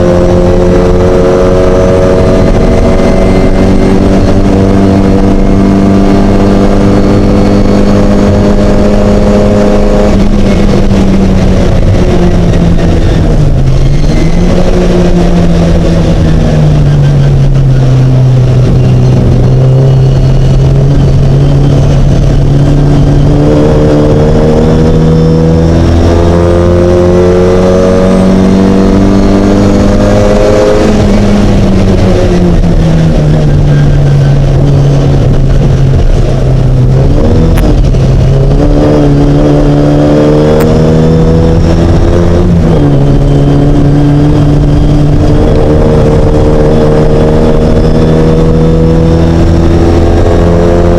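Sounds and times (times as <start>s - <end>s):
race car engine revving: 0.0s - 50.9s.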